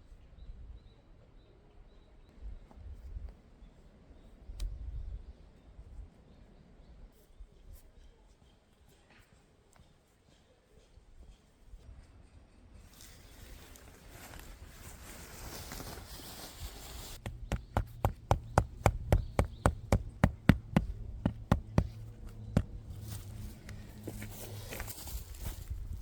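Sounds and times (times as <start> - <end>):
soft rustling: 12.8 - 26.0
sharp knocks: 17.2 - 23.0.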